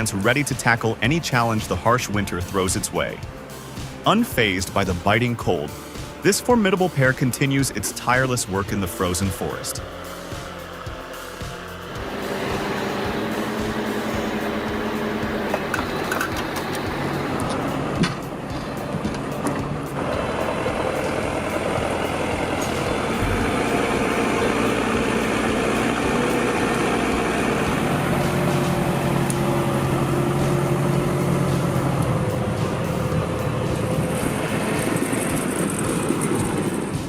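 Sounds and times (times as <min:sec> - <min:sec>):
heavy vehicle engine running: 0:00.0 - 0:37.0.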